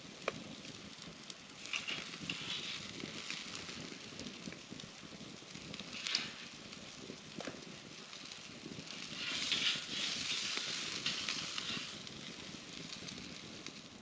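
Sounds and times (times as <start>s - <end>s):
campfire crackling and hissing: 0.0s - 14.0s.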